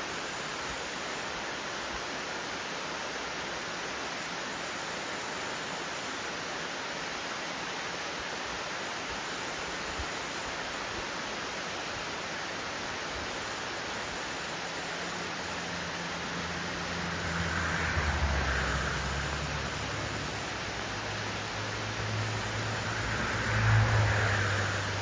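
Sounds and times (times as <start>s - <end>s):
small waterfall rushing over rocks: 0.0s - 25.0s.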